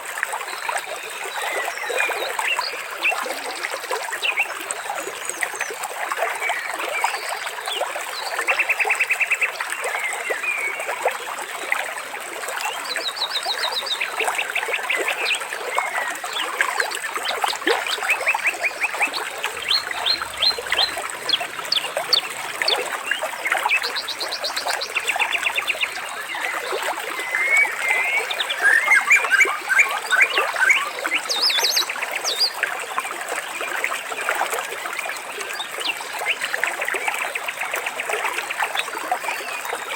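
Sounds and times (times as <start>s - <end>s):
water trickling and splashing: 0.0s - 39.9s
birds chirping and trilling: 17.3s - 32.5s.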